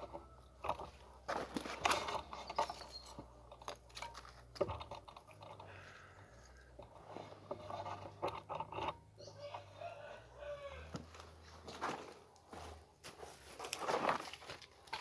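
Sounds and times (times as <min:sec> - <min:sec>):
wooden clicks and knocks: 0:00.0 - 0:05.7
wooden frames scraping: 0:00.0 - 0:15.0.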